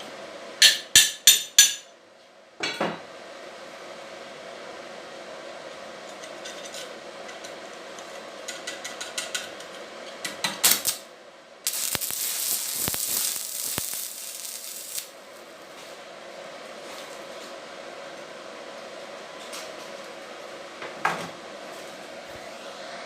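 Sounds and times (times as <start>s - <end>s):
low background hum: 0.0s - 23.0s
loud steady hiss: 10.6s - 16.5s.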